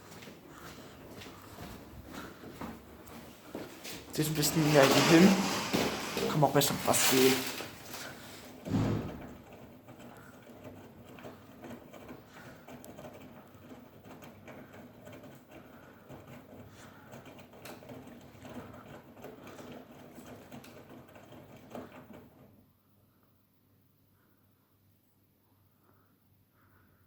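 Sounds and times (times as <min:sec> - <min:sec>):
wet laundry tumbling: 0:02.2 - 0:10.1
washing machine drum turning: 0:04.1 - 0:16.6.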